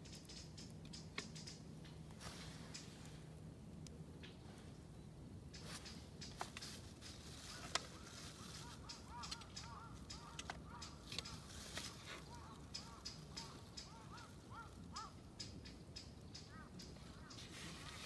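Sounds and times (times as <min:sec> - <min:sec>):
campfire crackling and popping: 0:00.0 - 0:02.2, 0:08.8 - 0:17.0.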